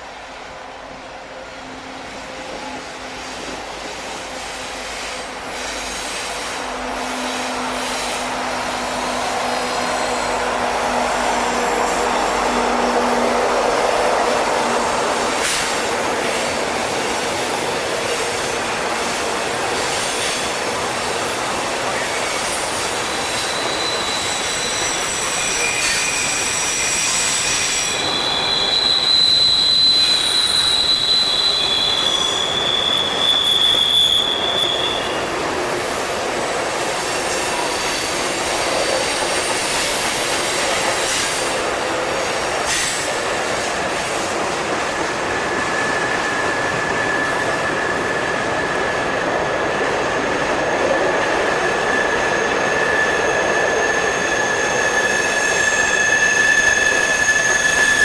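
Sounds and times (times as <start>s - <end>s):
train wheels rumbling on rails: 0.0s - 58.0s
high-pitched flange squeals: 22.6s - 39.9s, 45.2s - 49.6s, 50.7s - 58.0s.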